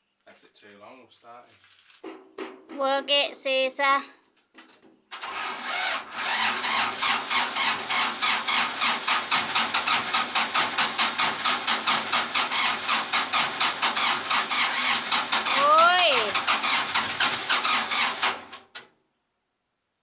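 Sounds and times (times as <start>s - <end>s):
tractor engine starting and idling: 5.1s - 18.9s.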